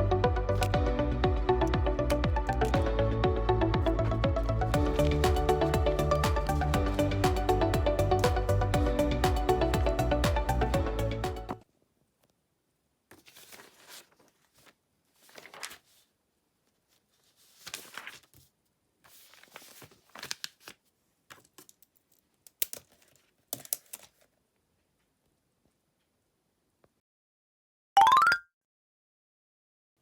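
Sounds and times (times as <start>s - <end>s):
rustling and crinkling: 13.1s - 25.3s.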